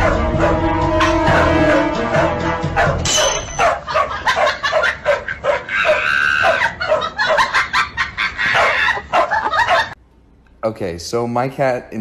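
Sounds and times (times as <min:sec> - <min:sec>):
dogs yapping: 0:02.7 - 0:10.0
dog squealing: 0:02.8 - 0:07.4, 0:08.4 - 0:10.0.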